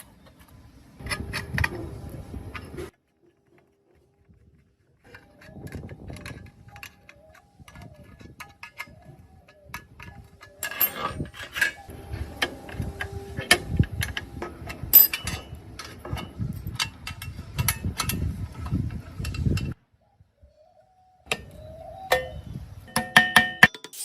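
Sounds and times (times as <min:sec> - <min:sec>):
metal parts clicking and clinking: 0:00.0 - 0:04.4, 0:05.0 - 0:19.8.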